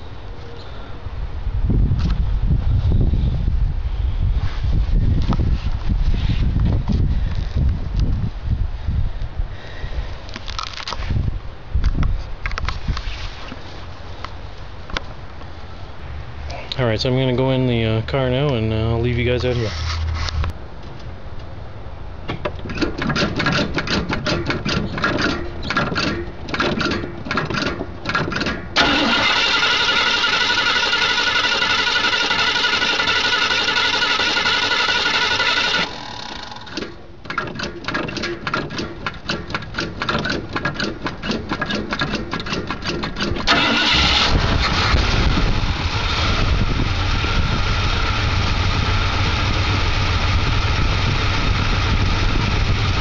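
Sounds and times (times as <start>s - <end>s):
starter motor cranking: 22.7s - 47.1s
engine running deep and steady: 23.6s - 37.0s, 38.7s - 53.0s.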